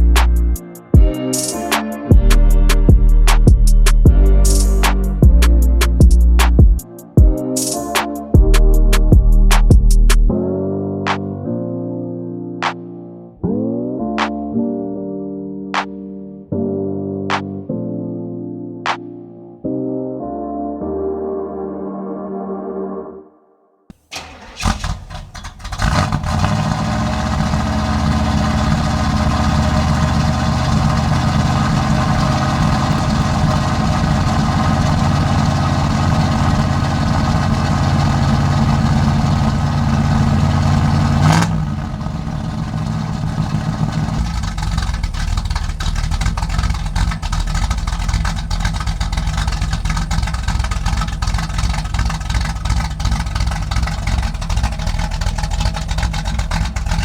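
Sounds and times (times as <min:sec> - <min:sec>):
vee eight engine idling: 0:24.1 - 0:57.0.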